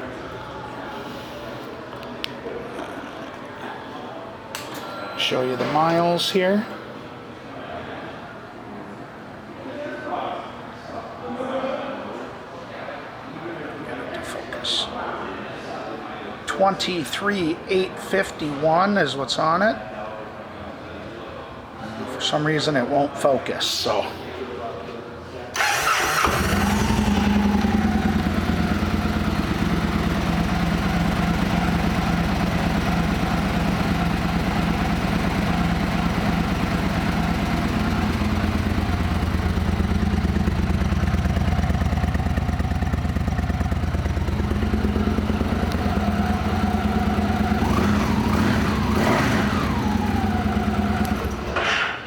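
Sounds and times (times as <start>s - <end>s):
motorcycle engine idling: 25.6s - 51.6s.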